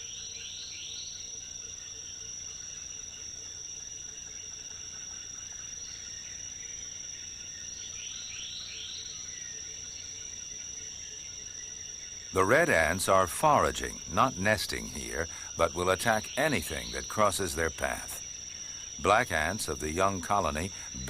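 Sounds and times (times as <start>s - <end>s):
high-pitched insect drone: 5.4s - 21.0s.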